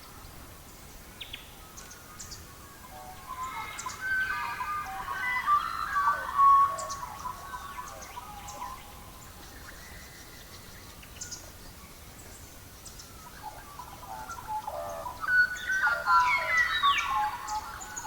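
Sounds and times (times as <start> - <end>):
faint steady hiss: 0.0 - 18.0
songbirds chirping and singing: 1.2 - 18.0.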